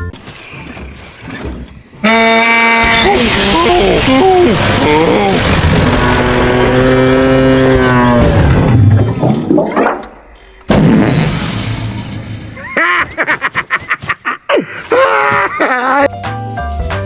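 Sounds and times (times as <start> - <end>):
clattering impacts: 0.0 - 14.3
loud crash: 2.7 - 9.2, 10.7 - 13.2.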